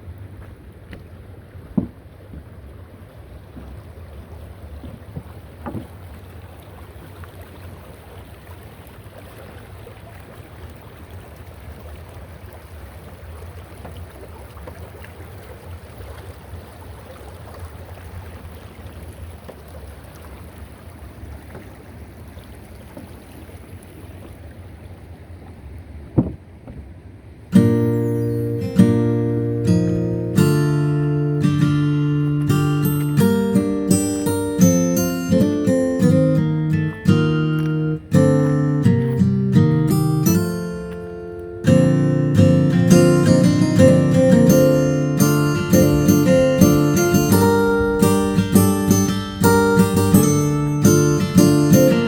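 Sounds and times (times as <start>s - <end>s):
wind buffeting microphone: 25.4s - 27.0s, 45.2s - 51.4s
short sharp knocks: 26.2s - 26.8s.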